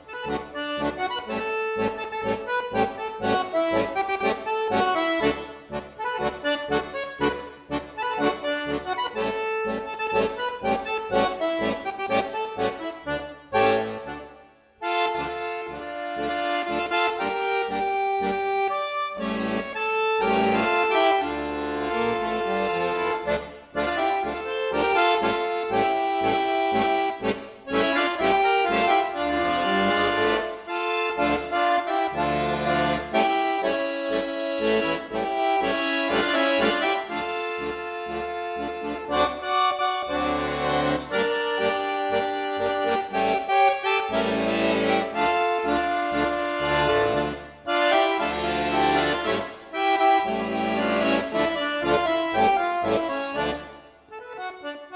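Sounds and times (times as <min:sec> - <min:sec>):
accordion melody: 0:00.0 - 0:54.9
rhythmic bass: 0:14.9 - 0:53.6.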